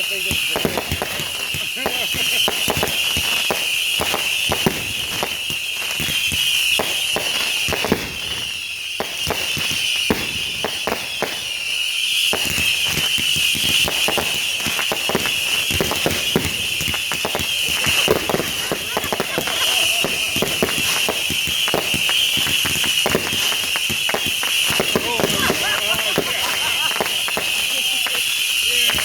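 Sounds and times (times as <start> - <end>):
fireworks banging and crackling: 0.0 - 29.0.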